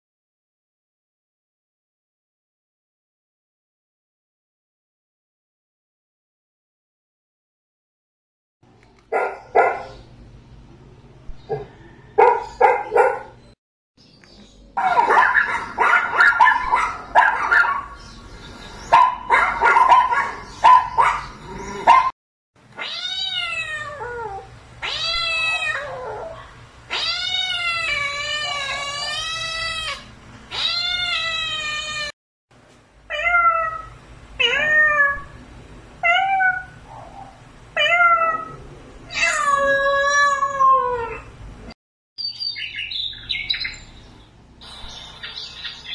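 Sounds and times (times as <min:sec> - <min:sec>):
cats meowing: 0:22.8 - 0:32.1, 0:33.1 - 0:35.4, 0:36.0 - 0:36.8, 0:37.8 - 0:41.3.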